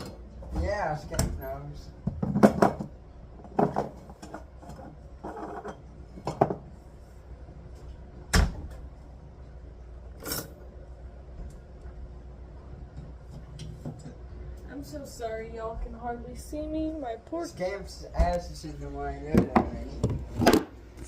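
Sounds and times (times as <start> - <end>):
household knocks and clunks: 2.0 - 4.5.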